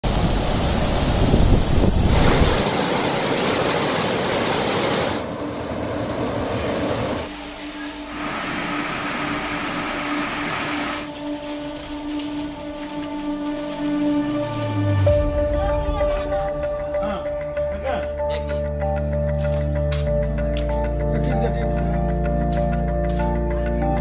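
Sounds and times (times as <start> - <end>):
floodwater rushing: 0.0 - 17.4
wind: 0.0 - 24.0.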